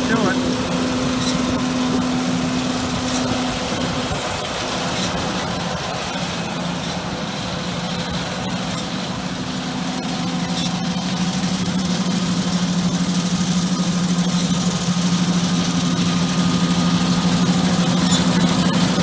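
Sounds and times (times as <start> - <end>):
diesel machinery engine droning: 0.0 - 19.0.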